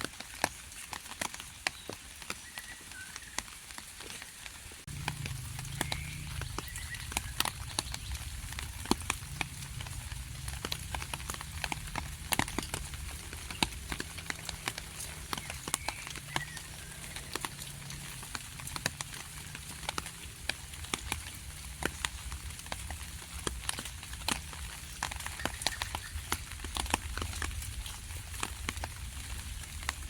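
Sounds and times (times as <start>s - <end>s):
raindrops tapping: 0.0s - 30.0s
steady low rumble: 4.9s - 16.9s.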